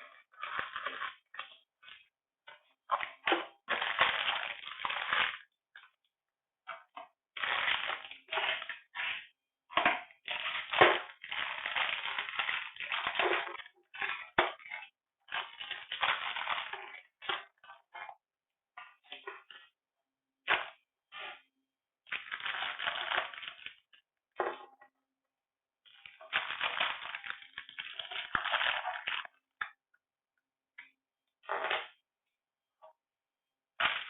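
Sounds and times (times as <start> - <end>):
packaging crinkling: 0.0 - 2.0, 2.9 - 5.5, 7.4 - 9.2, 10.2 - 17.5, 22.1 - 23.9, 26.0 - 29.3.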